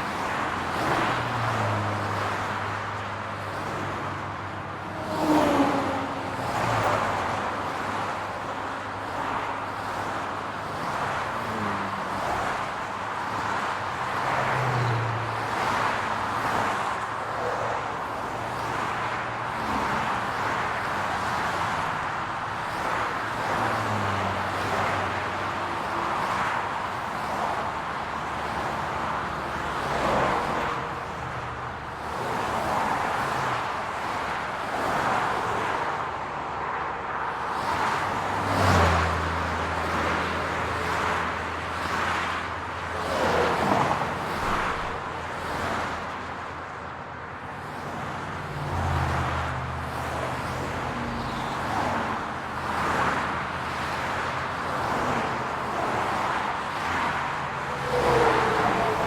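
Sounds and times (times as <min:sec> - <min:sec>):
cars passing: 0:00.0 - 0:59.0.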